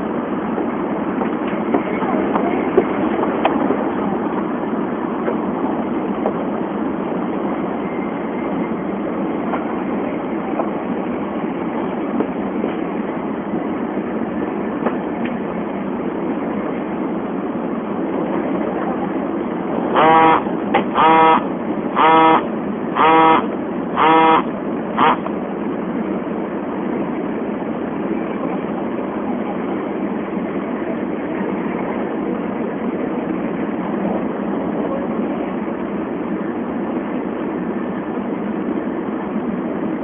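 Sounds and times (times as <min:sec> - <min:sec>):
train cabin rushing noise: 0:00.0 - 0:22.9
short pitched tones: 0:19.9 - 0:25.3.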